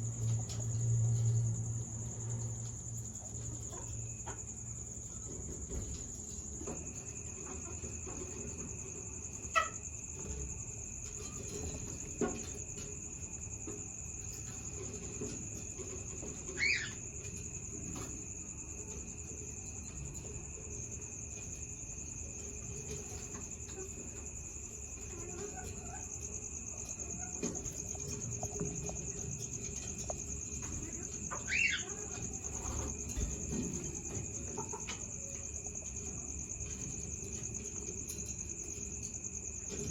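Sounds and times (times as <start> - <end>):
high-pitched cricket-like chirring: 0.0 - 39.9
finch chirps: 31.3 - 32.7.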